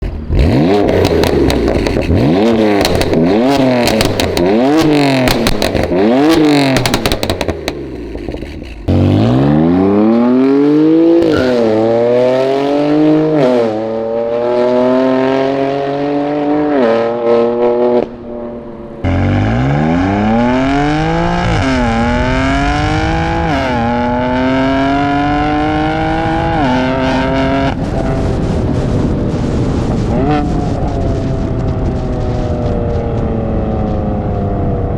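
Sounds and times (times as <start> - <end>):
car engine revving with crackling: 0.0 - 34.9
car accelerating through gears: 0.3 - 7.5, 8.9 - 29.0.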